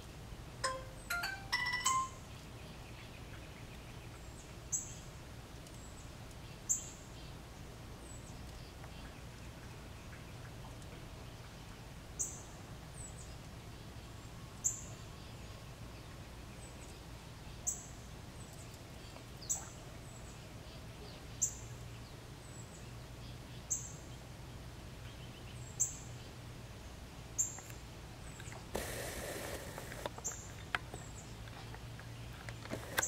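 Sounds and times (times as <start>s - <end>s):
steady low hum: 0.0s - 33.0s
short high chirp: 0.6s - 2.3s.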